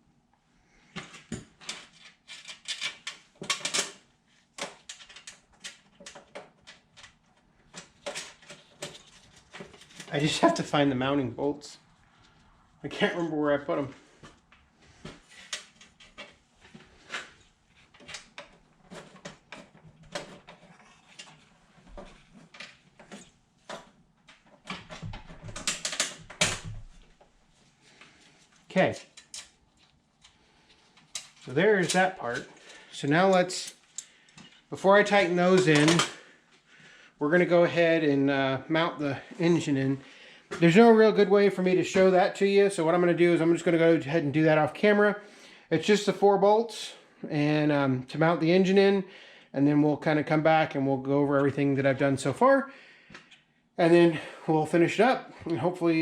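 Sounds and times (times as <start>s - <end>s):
nuts and bolts clinking: 1.4s - 4.0s
metal hardware clicking and clinking: 28.9s - 30.4s, 35.6s - 36.2s.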